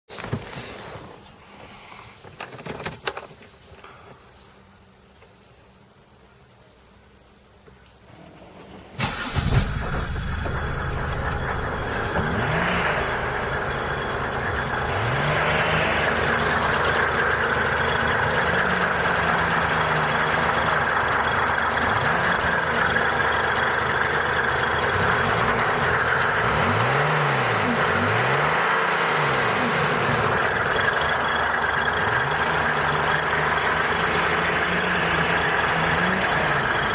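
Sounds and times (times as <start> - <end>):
diesel engine starting and idling: 8.1 - 36.9.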